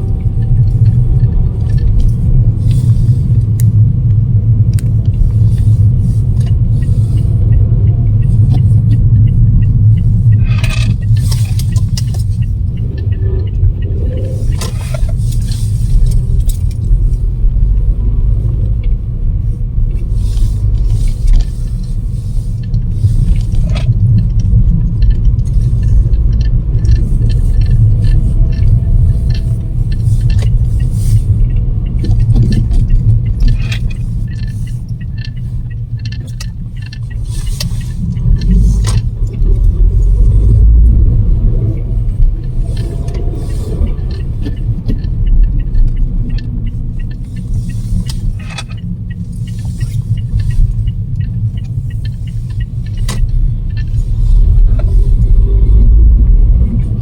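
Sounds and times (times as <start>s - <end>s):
clicks and rattles: 8.2s - 17.9s, 19.9s - 57.0s
storm wind buffeting microphone: 53.3s - 57.0s.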